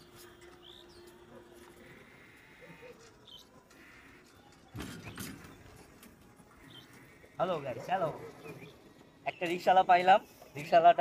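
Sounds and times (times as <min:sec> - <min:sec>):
rattling clatter of knocks: 0:04.7 - 0:06.2.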